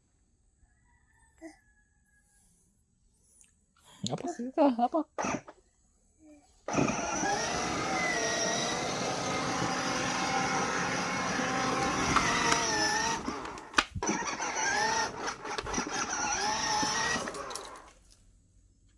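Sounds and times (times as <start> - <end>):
toy motorcycle electronic engine sound: 6.7 - 17.9.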